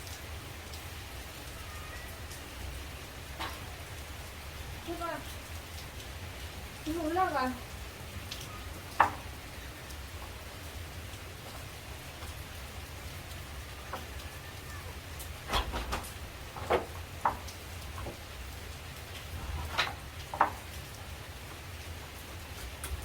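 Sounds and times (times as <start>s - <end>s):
steady rain falling: 0.0s - 23.0s.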